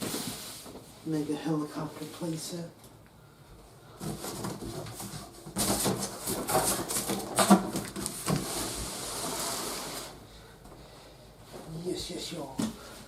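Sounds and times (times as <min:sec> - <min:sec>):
cardboard and plastic packaging rustling: 0:00.0 - 0:01.0, 0:03.9 - 0:10.2.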